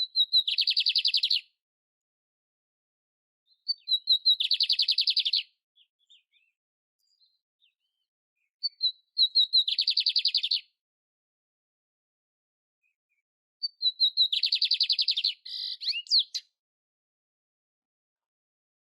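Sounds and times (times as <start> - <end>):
canary singing trills: 0.0 - 1.4, 3.5 - 10.7, 13.6 - 16.6.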